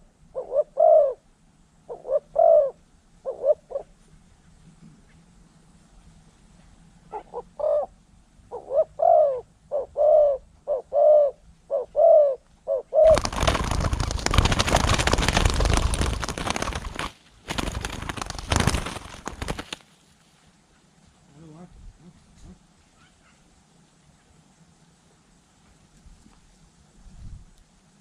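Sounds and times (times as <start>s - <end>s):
dove cooing: 0.0s - 1.2s, 1.9s - 4.0s, 7.1s - 17.0s
loud rough rushing noise: 13.1s - 19.8s.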